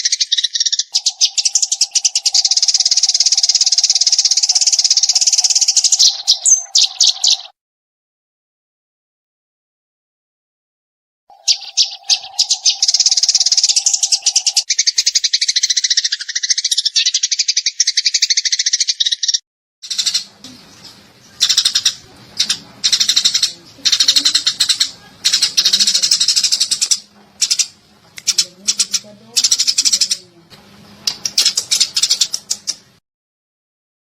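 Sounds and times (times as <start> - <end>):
sparrows chirping: 0.0 - 7.6, 11.3 - 33.0
faint low hum: 19.9 - 33.0.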